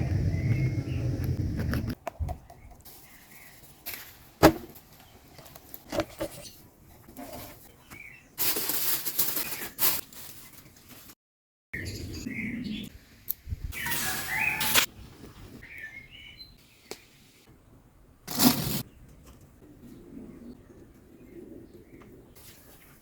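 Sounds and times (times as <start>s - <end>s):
birds chirping: 0.0s - 1.5s, 11.8s - 13.0s, 13.7s - 17.2s.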